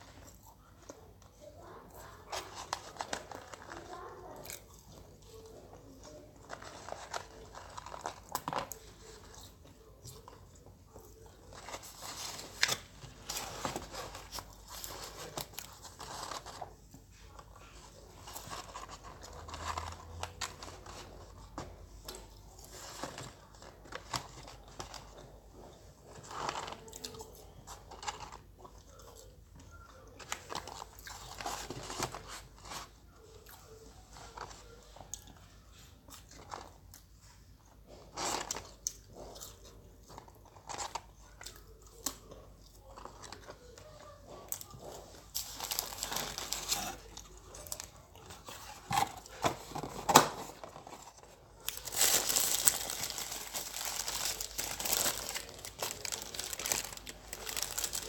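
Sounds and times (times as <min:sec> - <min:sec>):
person chewing crunchy fries: 0:01.9 - 0:16.4, 0:50.7 - 0:58.0.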